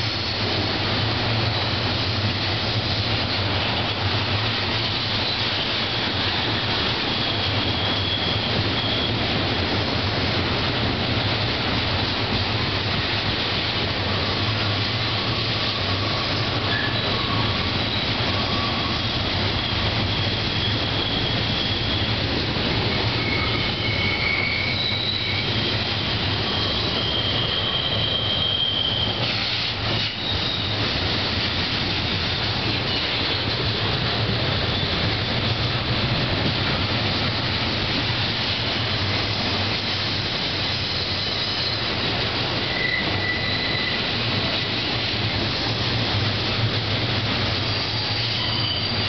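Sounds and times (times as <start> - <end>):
train wheels rumbling on rail: 0.0 - 49.0
high wheel squeals: 5.0 - 9.5, 15.1 - 31.1, 40.6 - 44.7, 47.5 - 49.0.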